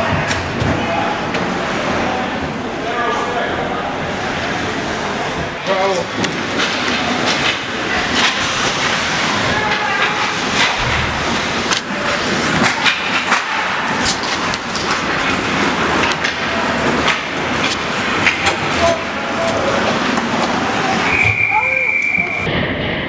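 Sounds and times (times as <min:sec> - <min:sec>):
sticks and puck clacking: 0:05.7 - 0:21.2.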